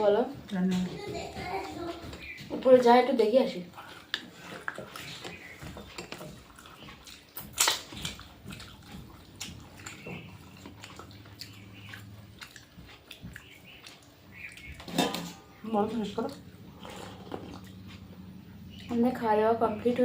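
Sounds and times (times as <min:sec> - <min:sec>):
wet squelching eating sounds: 0:00.3 - 0:20.0.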